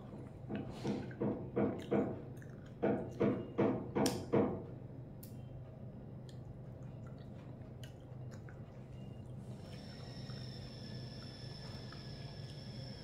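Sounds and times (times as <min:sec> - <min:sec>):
person chewing food: 0:00.0 - 0:03.3, 0:06.2 - 0:10.4.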